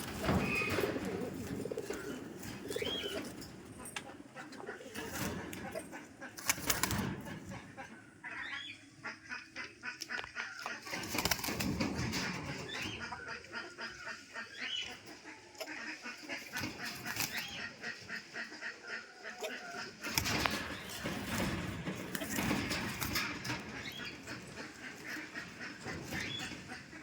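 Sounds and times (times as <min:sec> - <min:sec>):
pigeon wings flapping: 0:00.0 - 0:03.5, 0:06.4 - 0:07.4, 0:10.9 - 0:12.6, 0:16.5 - 0:17.4, 0:20.0 - 0:26.8
pigeon short high calls: 0:00.0 - 0:04.0.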